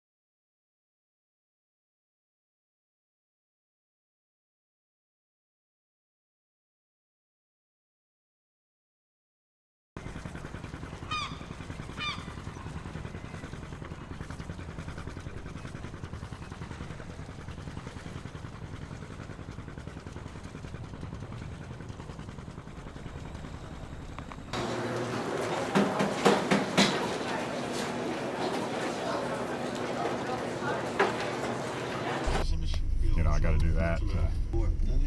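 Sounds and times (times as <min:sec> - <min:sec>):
low mechanical rumble with flutter: 0:10.0 - 0:25.6.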